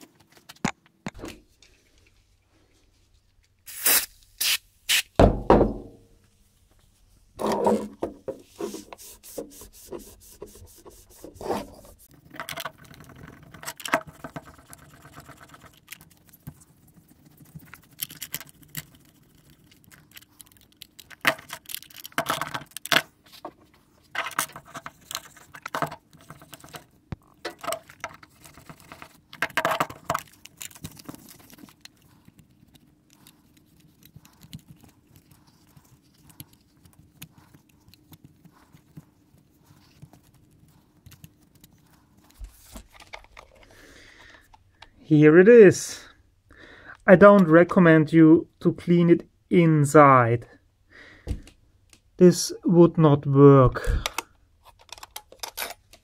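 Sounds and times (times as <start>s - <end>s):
hands rubbing metal: 7.4s - 12.2s.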